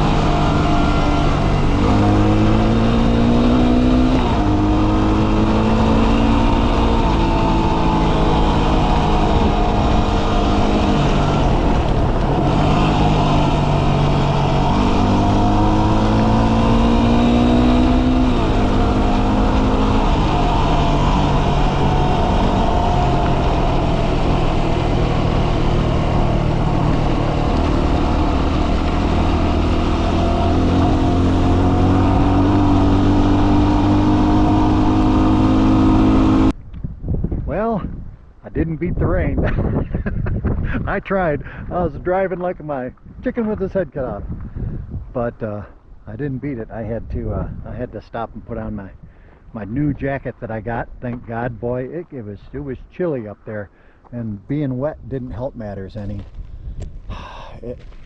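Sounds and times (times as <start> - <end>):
motorcycle engine accelerating: 0.0 - 36.6
wind and road noise: 0.0 - 58.0.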